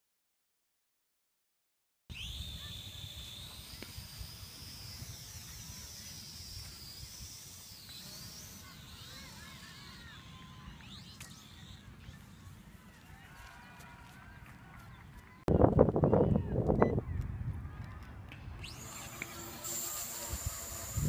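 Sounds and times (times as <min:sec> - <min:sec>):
drone propellers whining: 0:02.1 - 0:12.8, 0:18.6 - 0:21.0
wind rumble on microphone: 0:14.9 - 0:18.8, 0:20.2 - 0:21.0.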